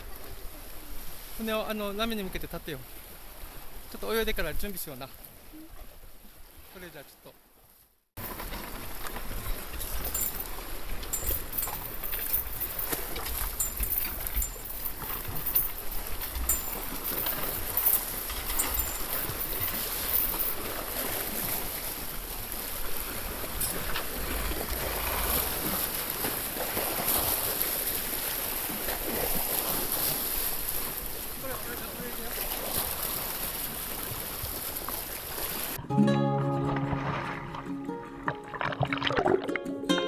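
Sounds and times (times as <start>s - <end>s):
water lapping against boat hull: 7.4s - 35.8s, 36.6s - 39.7s.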